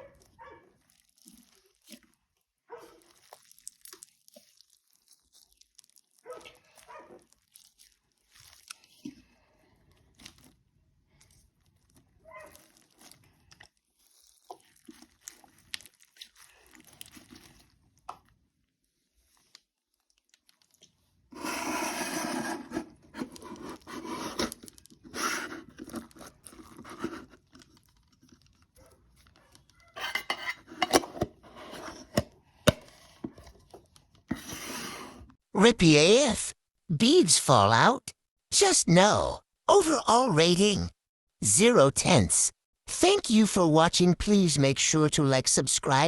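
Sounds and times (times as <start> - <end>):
slime being squished and torn: 0.2 - 18.6.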